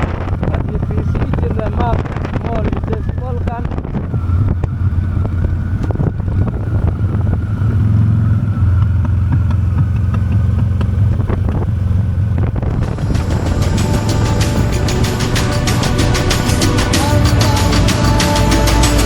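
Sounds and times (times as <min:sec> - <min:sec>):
motorcycle engine running: 0:00.0 - 0:19.0
wind buffeting microphone: 0:00.0 - 0:19.0
music: 0:12.8 - 0:19.0.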